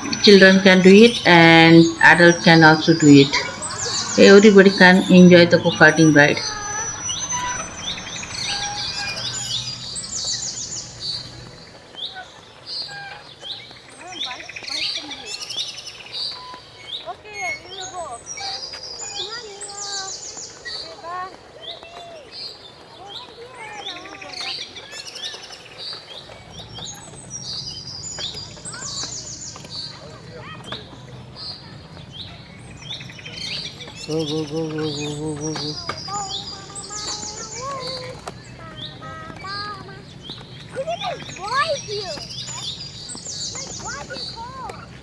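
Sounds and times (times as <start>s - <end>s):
low steady hum: 0.0s - 11.8s
birds chirping: 0.0s - 45.0s.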